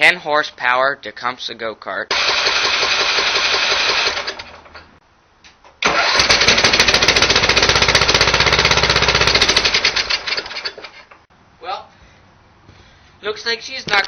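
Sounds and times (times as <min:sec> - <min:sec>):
engine cranking without starting: 0:02.1 - 0:04.9, 0:05.8 - 0:11.3.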